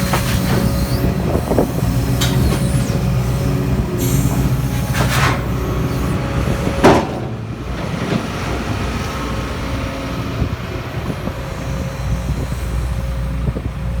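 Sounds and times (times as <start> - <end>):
excavator diesel engine running: 0.0 - 14.0
loud hiss or clunk: 4.0 - 5.6.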